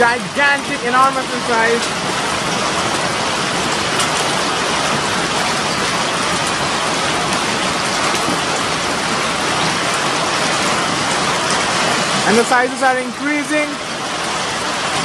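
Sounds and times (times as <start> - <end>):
hailstones ticking on surfaces: 0.0 - 15.0
heavy rain hiss: 0.0 - 15.0.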